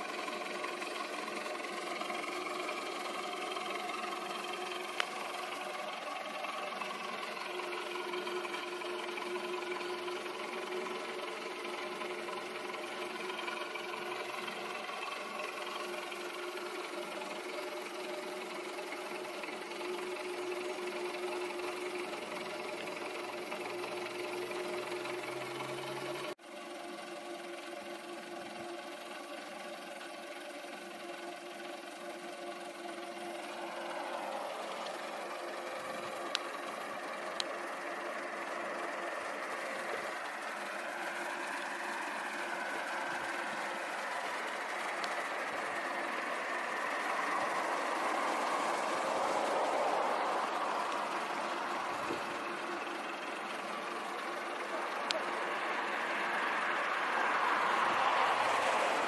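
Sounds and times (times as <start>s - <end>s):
car engine idling: 0.0s - 59.0s
engine and tyre noise: 0.0s - 59.0s
faint ticks: 36.0s - 38.7s, 43.7s - 45.7s.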